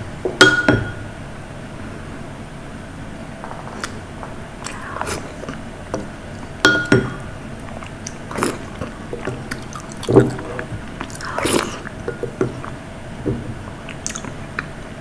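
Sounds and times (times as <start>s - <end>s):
biting and chewing: 3.4s - 15.0s.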